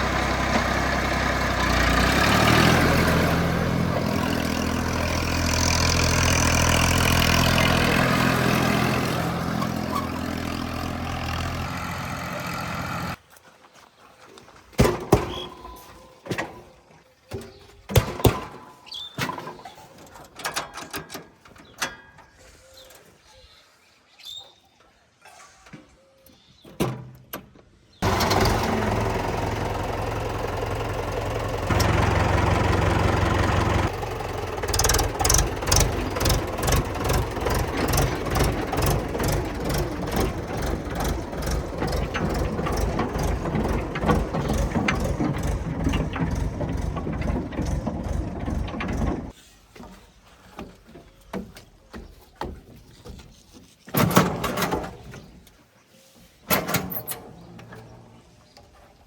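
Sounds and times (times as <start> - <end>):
tractor engine chugging: 0.0 - 13.2, 28.0 - 49.4.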